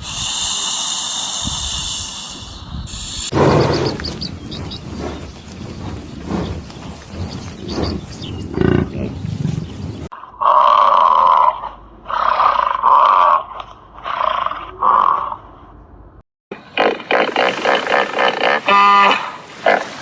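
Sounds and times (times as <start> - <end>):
low rough animal grunting: 3.3 - 9.3
loud animal calls: 16.6 - 20.0.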